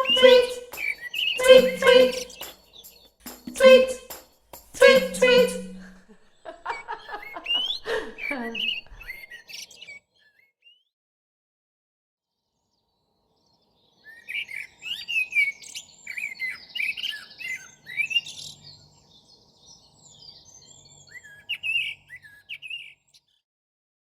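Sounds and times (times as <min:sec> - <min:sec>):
birds chirping and warbling: 0:00.0 - 0:03.1, 0:06.4 - 0:10.8, 0:12.6 - 0:23.4.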